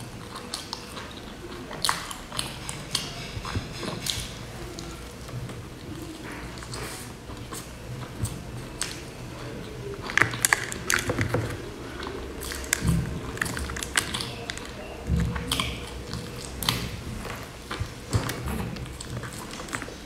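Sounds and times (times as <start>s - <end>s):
crunchy chewing: 0.0s - 20.0s.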